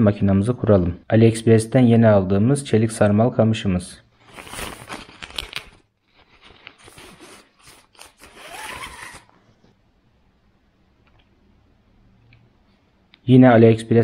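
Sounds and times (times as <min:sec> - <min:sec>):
fishing rod rustling and scraping: 0:04.2 - 0:09.8.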